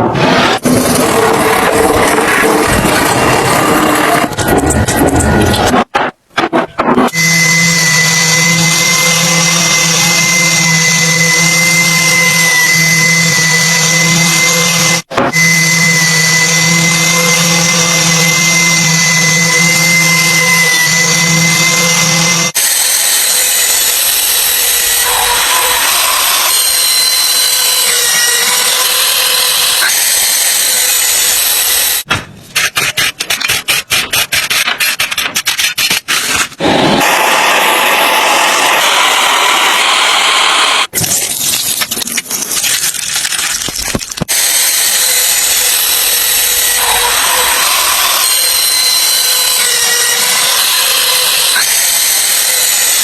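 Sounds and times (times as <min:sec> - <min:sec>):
power tool working on metal: 0:07.1 - 0:32.1, 0:36.6 - 0:40.9, 0:44.2 - 0:53.0.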